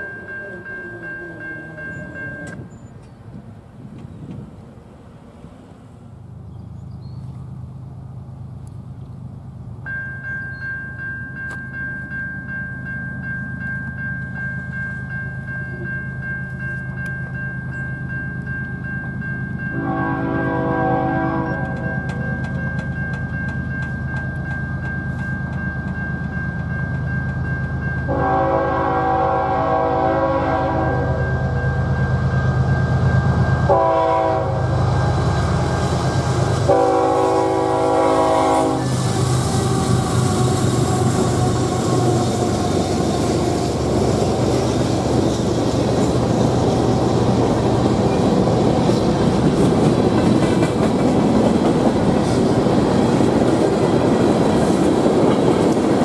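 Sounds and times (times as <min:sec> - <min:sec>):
locomotive air horn blasts: 0:19.7 - 0:22.2, 0:28.1 - 0:31.2, 0:33.7 - 0:35.2, 0:36.6 - 0:39.2
train wheels clickety-clack: 0:21.4 - 0:28.3, 0:38.6 - 0:56.0.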